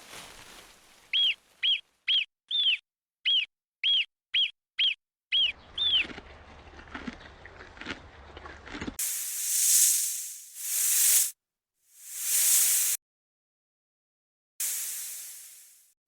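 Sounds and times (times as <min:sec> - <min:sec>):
hissing sound effects: 0:09.0 - 0:11.3, 0:12.0 - 0:13.0, 0:14.6 - 0:15.9.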